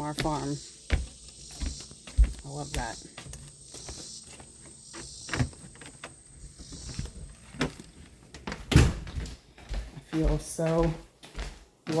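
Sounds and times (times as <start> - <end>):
insects chirping: 0.0 - 8.4.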